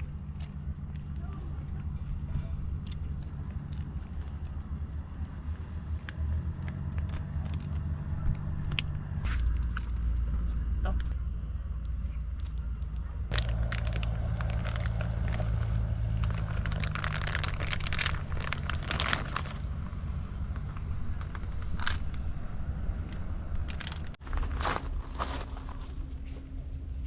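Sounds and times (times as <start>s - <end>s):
steady low hum: 0.0s - 27.0s
plastic wrapping crinkling: 13.3s - 22.3s, 23.6s - 26.0s.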